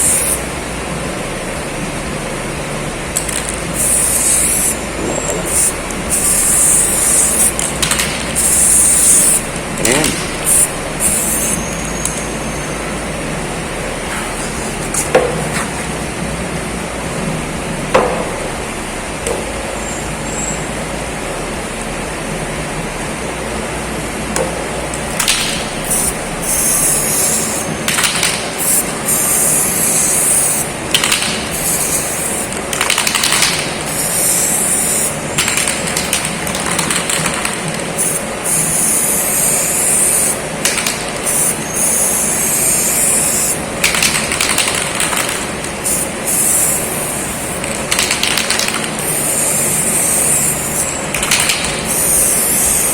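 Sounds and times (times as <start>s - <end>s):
spray paint hissing: 0.0s - 0.5s, 3.1s - 13.0s, 25.0s - 52.9s
steady background noise: 0.0s - 52.9s.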